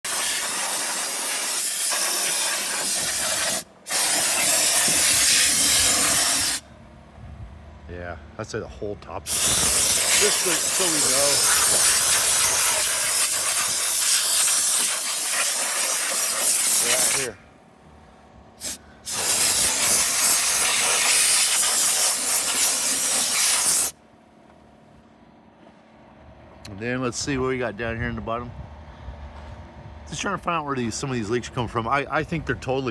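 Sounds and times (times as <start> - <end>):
degreaser spray hissing: 0.1 - 6.6, 9.3 - 17.4, 18.6 - 23.9.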